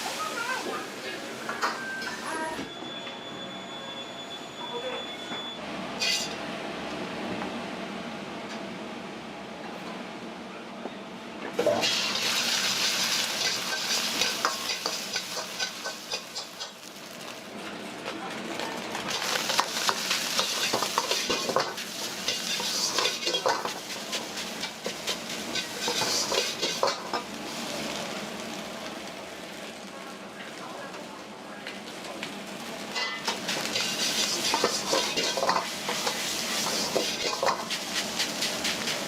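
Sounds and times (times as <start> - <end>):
food sizzling in hot oil: 0.0 - 2.5, 11.6 - 17.6, 19.1 - 29.9, 32.4 - 39.0
metal spatula scraping wok: 6.0 - 6.4, 11.7 - 16.8, 19.7 - 27.2, 33.0 - 39.0.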